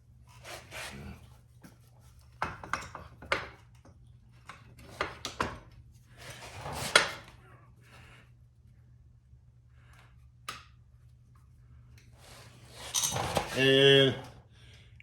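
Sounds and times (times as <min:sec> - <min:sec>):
metal parts clinking: 0:12.8 - 0:13.6.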